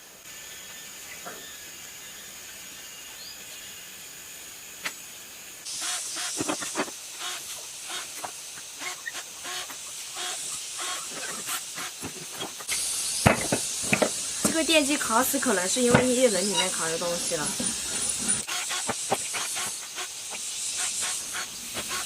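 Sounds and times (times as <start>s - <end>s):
high hissing jet: 0.0s - 22.0s.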